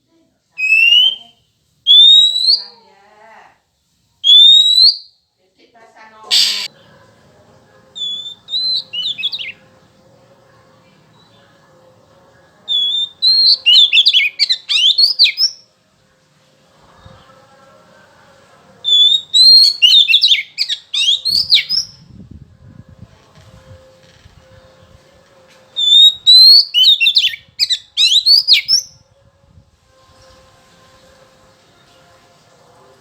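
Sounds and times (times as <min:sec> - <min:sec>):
bird singing whistled phrases: 0:00.6 - 0:02.7, 0:04.2 - 0:05.1, 0:08.0 - 0:09.6, 0:12.7 - 0:15.6, 0:18.9 - 0:22.0, 0:25.8 - 0:29.0.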